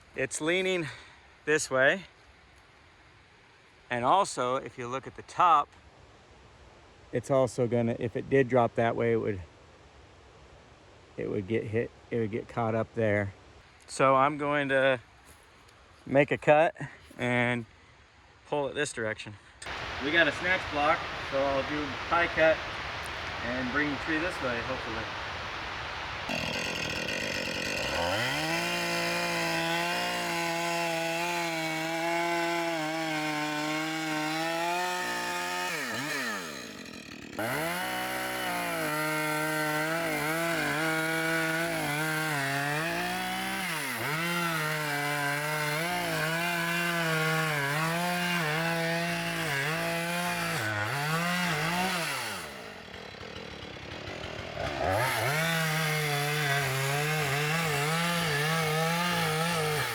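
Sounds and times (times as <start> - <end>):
chainsaw cutting wood: 19.6 - 59.9.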